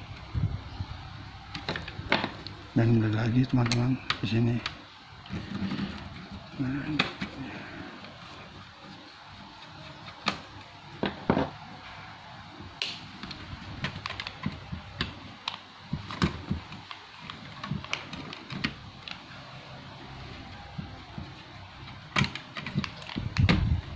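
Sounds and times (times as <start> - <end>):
plastic laptop case clicking: 21.0 - 23.7.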